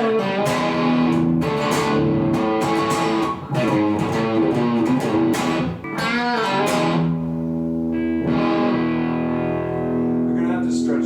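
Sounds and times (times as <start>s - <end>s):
electric guitar through amplifier: 0.0s - 11.0s.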